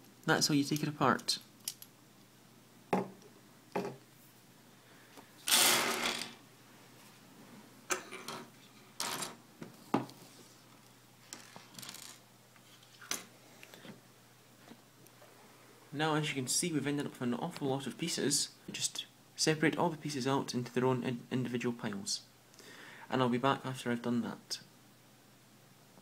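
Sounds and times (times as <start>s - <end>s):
plastic pieces clattering on table: 11.3s - 12.2s.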